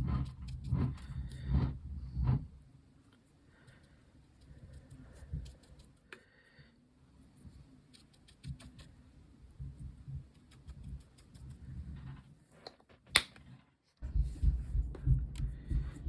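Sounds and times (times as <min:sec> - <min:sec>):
soft low bumps: 0:14.0 - 0:16.0.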